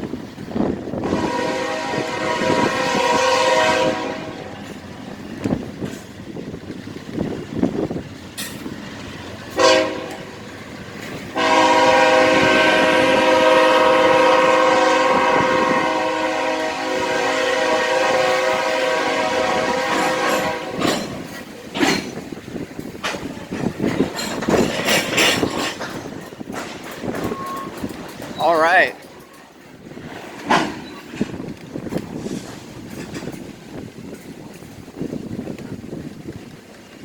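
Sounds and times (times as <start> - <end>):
train wheels clacking on rails: 0.0 - 37.0
locomotive air horn blasts: 1.0 - 4.8, 9.5 - 10.4, 11.3 - 21.1.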